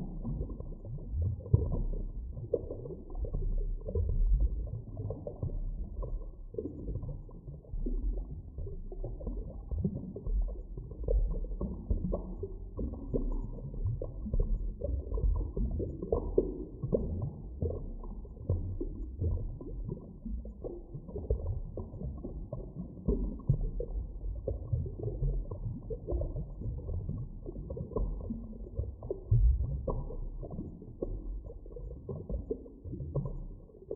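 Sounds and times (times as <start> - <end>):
deep underwater rumble: 0.0 - 33.9
underwater pops and crackles: 9.0 - 33.9.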